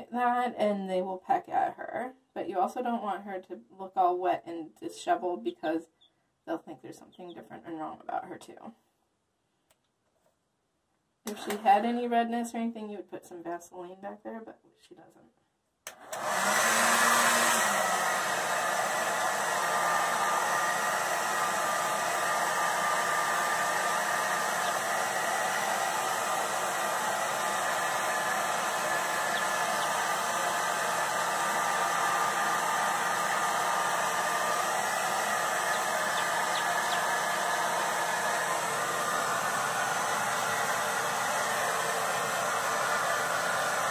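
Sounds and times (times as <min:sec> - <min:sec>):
hair dryer blowing air: 0:15.9 - 0:43.9.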